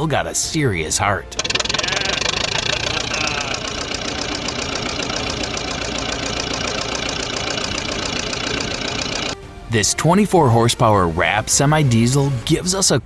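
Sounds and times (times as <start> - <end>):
diesel engine running: 1.0 - 9.6.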